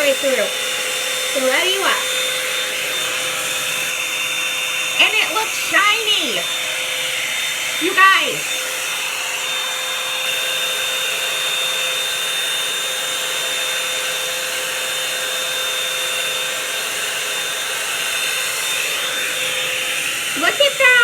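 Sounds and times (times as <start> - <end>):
high motor whine: 0.0 - 13.5
hair dryer brush blowing air: 0.0 - 21.0.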